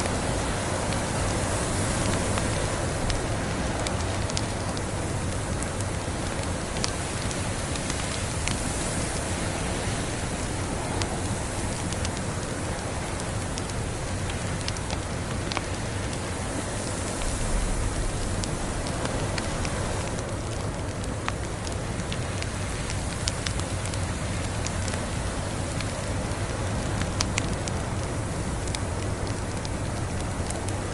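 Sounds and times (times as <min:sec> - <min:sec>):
storm hiss: 0:00.0 - 0:30.9
wood fire crackling and popping: 0:00.0 - 0:30.9
low rumble: 0:16.9 - 0:21.0.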